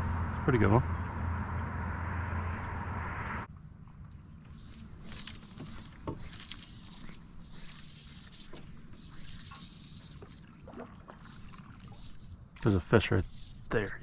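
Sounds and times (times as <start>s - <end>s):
hiss with low hum: 4.4s - 14.0s
water splashes and drips: 8.3s - 12.8s.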